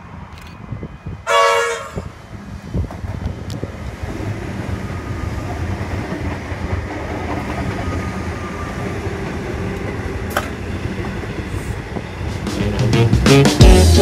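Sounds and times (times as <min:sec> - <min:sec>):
train rumbling over rails: 0:00.0 - 0:14.0
train horn blast: 0:01.2 - 0:02.2, 0:12.4 - 0:14.0.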